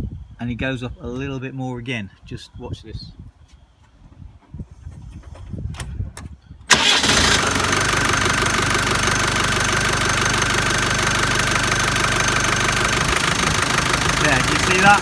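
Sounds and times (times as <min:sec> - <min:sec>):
diesel engine starting and idling: 0:06.7 - 0:15.0.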